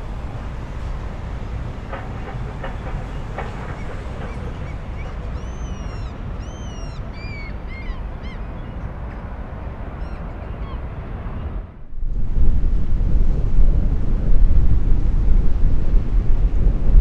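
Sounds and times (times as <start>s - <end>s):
steady low rumble: 0.0s - 4.4s, 11.1s - 17.0s
birds calling: 1.9s - 11.6s.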